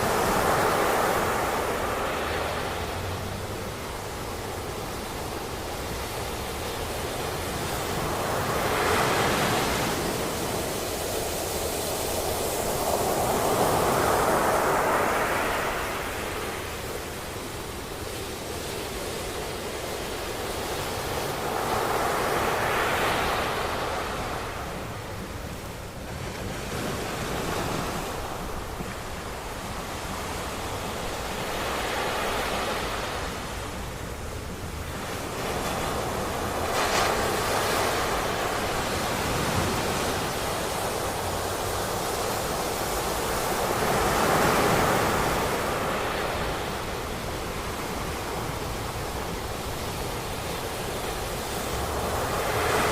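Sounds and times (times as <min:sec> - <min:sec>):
ocean waves breaking on beach: 0:00.0 - 0:52.9.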